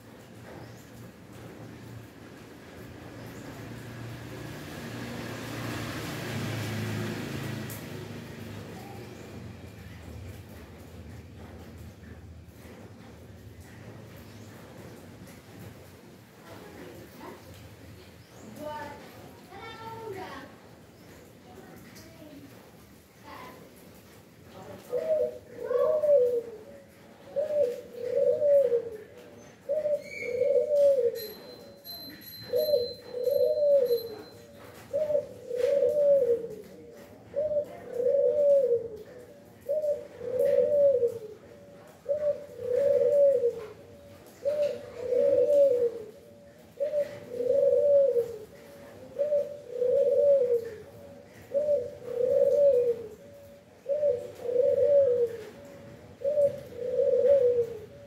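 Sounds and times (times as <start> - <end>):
dove cooing: 24.8 - 58.0.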